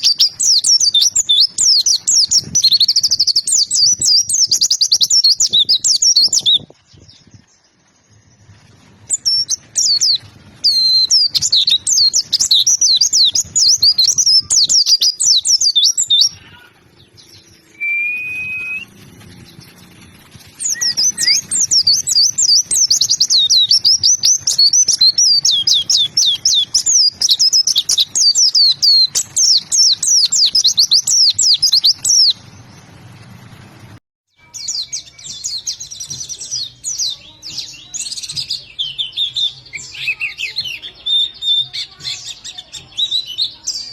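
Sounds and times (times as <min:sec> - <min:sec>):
bird twittering song: 0:00.0 - 0:33.3, 0:34.4 - 0:43.9
short bird whistle: 0:17.8 - 0:18.9.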